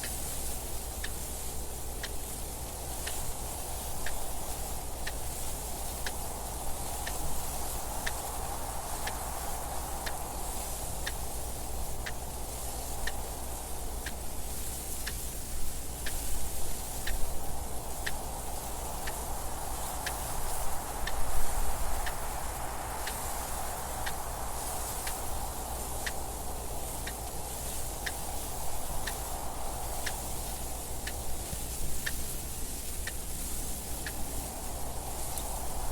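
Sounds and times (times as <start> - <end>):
wind noise: 0.0 - 35.9
clock ticking: 9.0 - 15.3, 16.0 - 22.3, 23.0 - 35.6.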